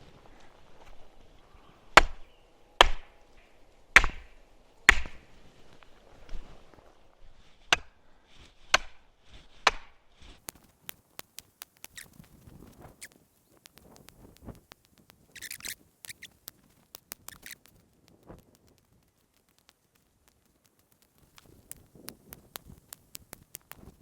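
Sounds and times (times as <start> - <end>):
stakes being hammered into ground: 1.9 - 5.4, 7.6 - 8.0, 8.6 - 10.6
brief rustle: 5.4 - 24.0
light clicks: 10.4 - 24.0.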